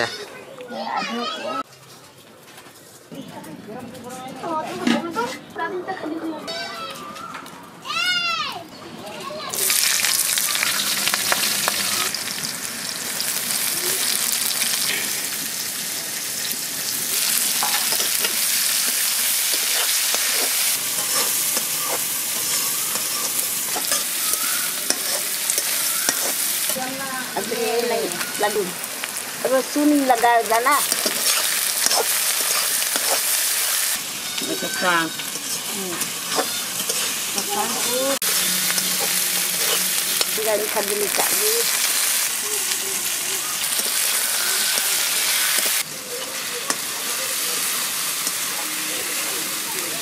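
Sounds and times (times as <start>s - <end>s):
vegetables sizzling in hot oil: 9.5s - 50.0s
spatula stirring in pan: 17.3s - 28.2s, 30.0s - 48.5s.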